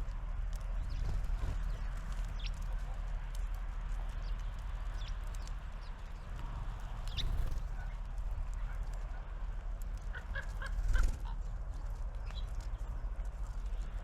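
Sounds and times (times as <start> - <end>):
low outdoor rumble: 0.0 - 14.0
small birds calling: 4.0 - 8.0, 10.0 - 11.5.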